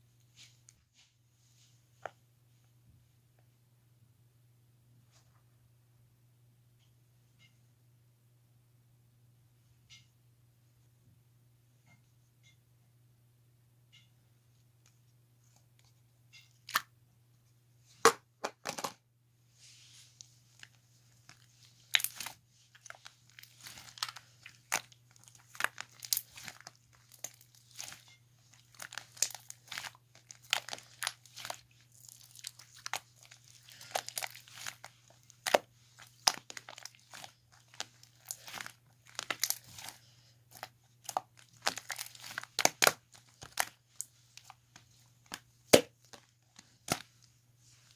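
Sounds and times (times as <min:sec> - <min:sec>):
faint low hum: 0:00.0 - 0:47.9
slime squished by hand: 0:21.3 - 0:44.6.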